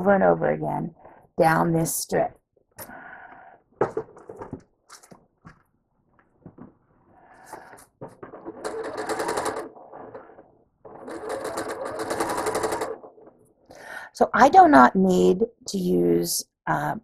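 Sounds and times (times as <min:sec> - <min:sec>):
sewing machine stitching: 0:07.6 - 0:13.4.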